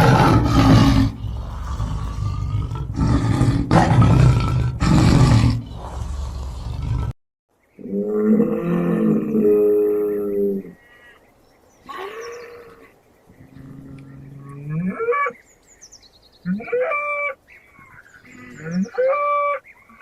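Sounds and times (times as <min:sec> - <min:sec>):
large animal roaring: 0:00.0 - 0:07.2, 0:07.8 - 0:10.8.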